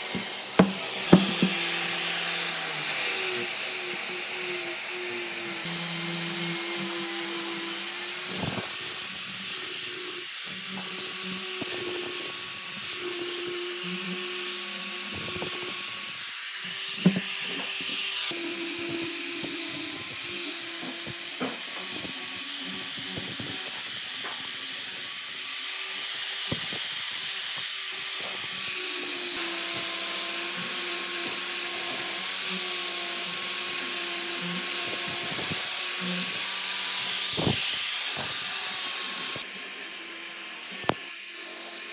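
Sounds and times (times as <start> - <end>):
power tool motor working wood: 0.0 - 41.9
sharp knocks: 0.2 - 1.7, 17.0 - 18.0.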